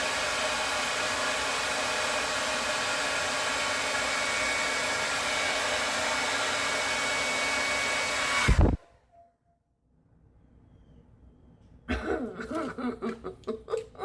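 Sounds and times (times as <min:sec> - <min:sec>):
hair dryer blowing: 0:00.0 - 0:08.8.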